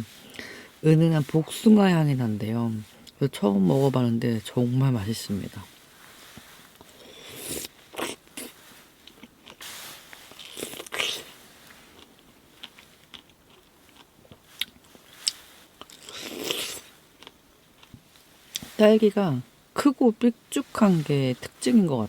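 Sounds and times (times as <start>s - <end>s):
person biting and chewing fruit: 6.8s - 9.6s, 10.2s - 18.7s.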